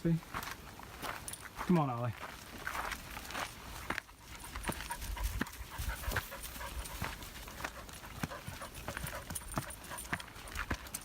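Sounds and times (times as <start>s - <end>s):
footsteps on dirt trail: 0.0s - 11.0s
dog panting: 4.1s - 11.0s.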